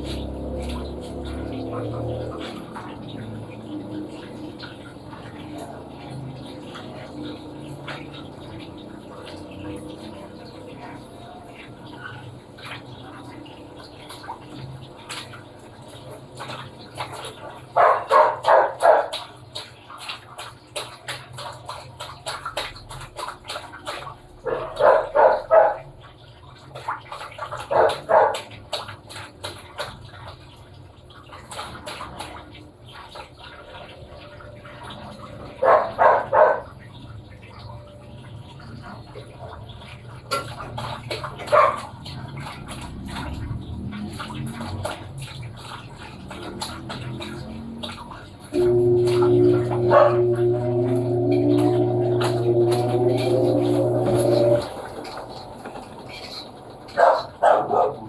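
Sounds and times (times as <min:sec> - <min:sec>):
low motor hum: 0:00.0 - 0:15.1, 0:42.0 - 0:56.1
washing machine sloshing water: 0:00.0 - 0:58.0
rapid bark-like yelps: 0:17.8 - 0:19.2, 0:24.5 - 0:25.8, 0:27.7 - 0:28.4, 0:35.6 - 0:36.7, 0:57.0 - 0:58.0.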